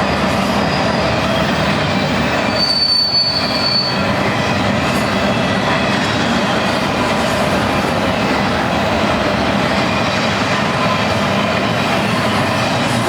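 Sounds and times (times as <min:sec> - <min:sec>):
high wheel squeal: 0:00.0 - 0:06.2
train wheels rolling on rails: 0:00.0 - 0:13.0.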